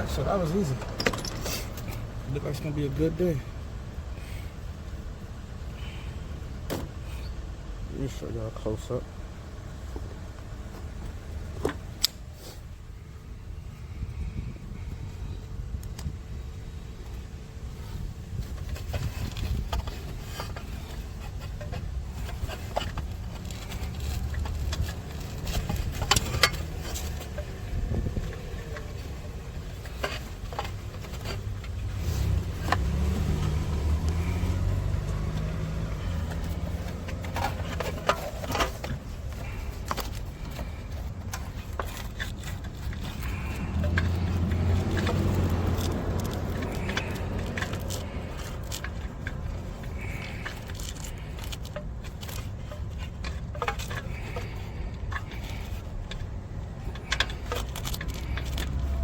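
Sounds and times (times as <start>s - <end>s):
low uneven rumble: 0.0s - 59.0s
metal tools clicking and tapping: 21.6s - 59.0s.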